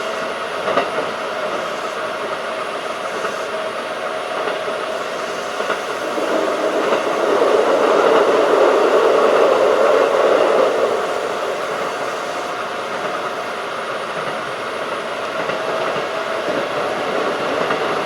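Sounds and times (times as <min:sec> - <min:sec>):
electric train running: 0:00.6 - 0:18.0.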